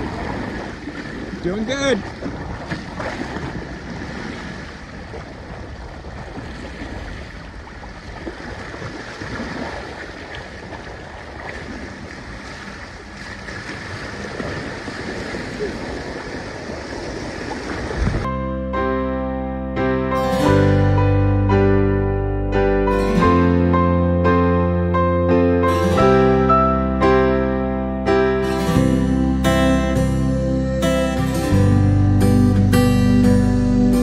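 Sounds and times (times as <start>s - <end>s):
water splashing against hulls: 0.0s - 18.3s.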